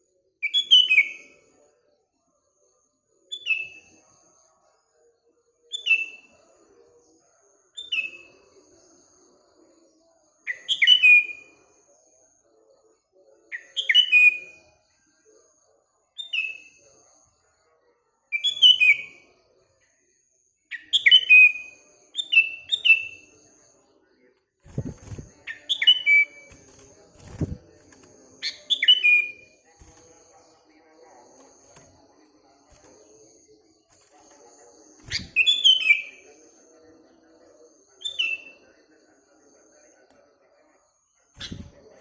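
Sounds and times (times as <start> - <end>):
bird whistled phrases: 35.0 - 36.2.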